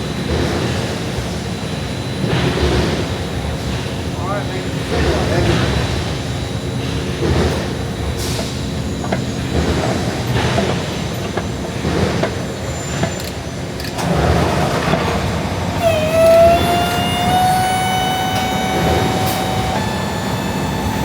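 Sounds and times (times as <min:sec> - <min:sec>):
heavy machinery rumbling: 0:15.7 - 0:21.0
high squeal rising in pitch: 0:15.8 - 0:21.0.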